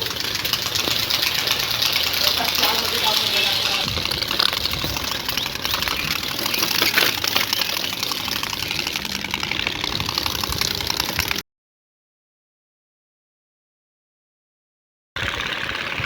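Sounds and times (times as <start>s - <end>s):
motorbike engine rattling beat: 0.0s - 11.4s.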